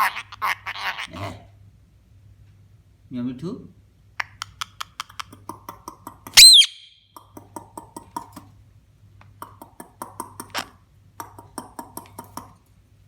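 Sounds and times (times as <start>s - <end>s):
parrot shrill call: 6.4s - 7.0s.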